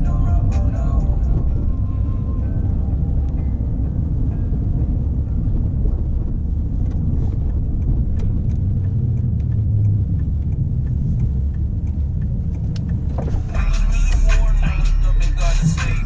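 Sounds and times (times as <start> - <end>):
car engine and road noise: 0.0 - 16.0
faint ticks: 6.6 - 14.4.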